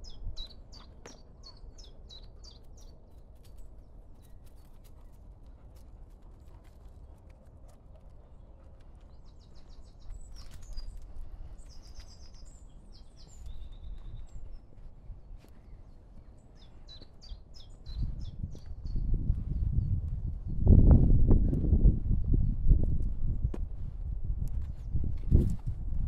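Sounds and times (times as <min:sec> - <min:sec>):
small songbirds singing: 0:00.0 - 0:06.0, 0:08.2 - 0:20.7.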